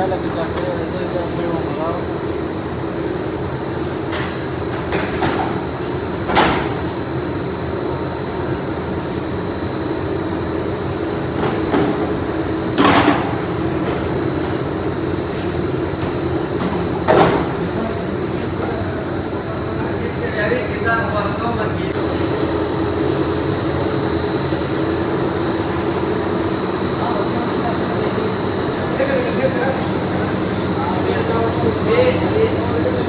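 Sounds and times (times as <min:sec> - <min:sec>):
factory machinery humming: 0:00.0 - 0:33.0
high machine whine: 0:00.0 - 0:33.0.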